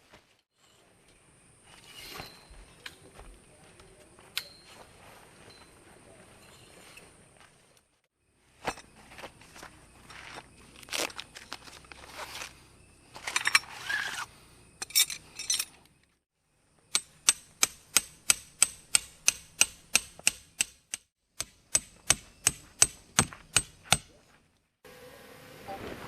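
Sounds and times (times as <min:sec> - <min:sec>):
rustling and clattering gear: 0:08.6 - 0:16.2
hammer striking metal tent peg: 0:16.9 - 0:24.1.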